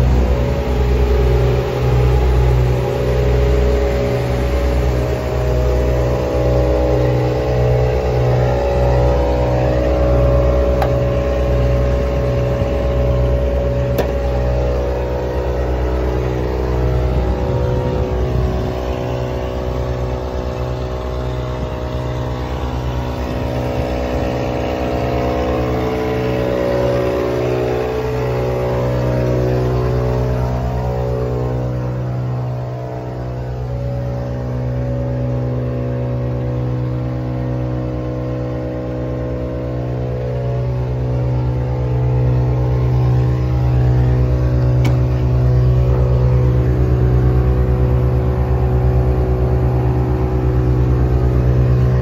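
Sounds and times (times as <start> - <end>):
diesel truck engine idling: 0.0 - 52.0.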